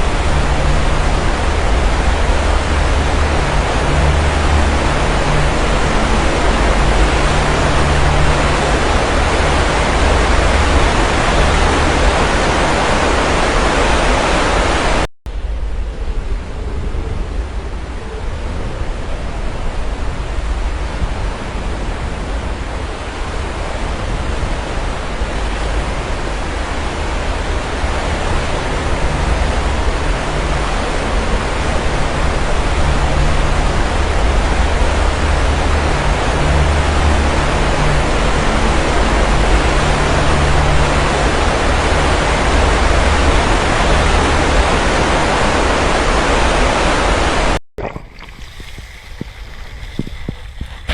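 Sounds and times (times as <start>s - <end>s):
sea surf washing ashore: 45.8s - 50.9s.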